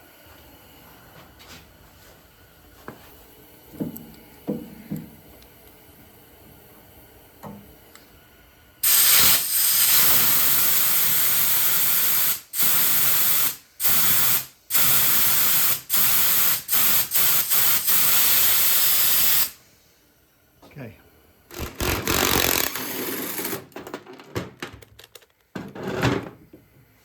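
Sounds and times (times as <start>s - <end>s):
compressed air hissing from blow gun: 8.8s - 19.6s.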